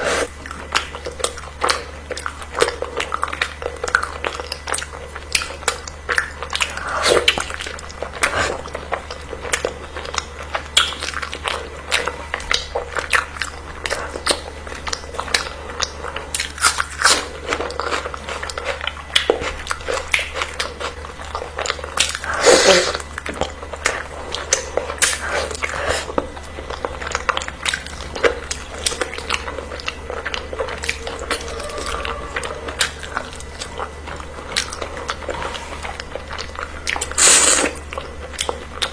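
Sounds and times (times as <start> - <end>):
crunching and chewing: 0.0 - 38.9
steady low hum: 0.0 - 38.9.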